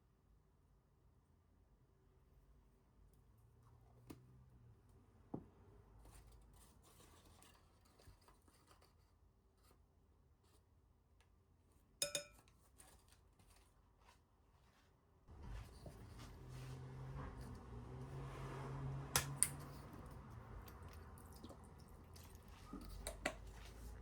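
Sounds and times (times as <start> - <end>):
short ringing clink: 12.0 - 12.4.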